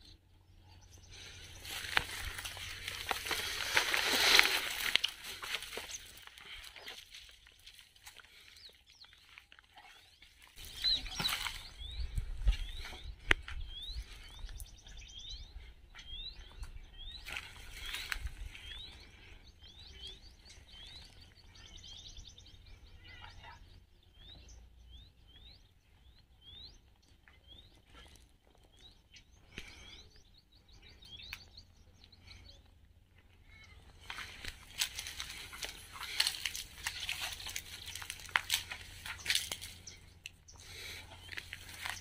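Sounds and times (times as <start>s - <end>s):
footsteps through dry brush: 1.1s - 21.7s, 33.5s - 42.0s
small bird chirping: 8.5s - 42.0s
bird twittering trills: 10.0s - 32.6s.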